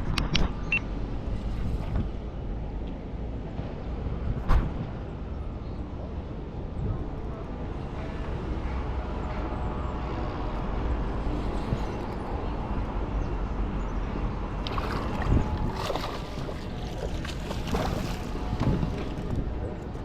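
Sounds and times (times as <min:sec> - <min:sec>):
boat engine low rumble: 0:00.0 - 0:20.0
wind on microphone: 0:14.3 - 0:20.0.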